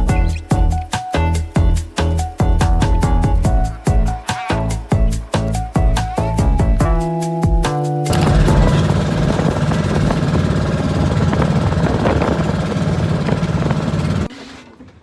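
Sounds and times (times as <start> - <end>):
engine running with rattle: 8.1 - 14.3.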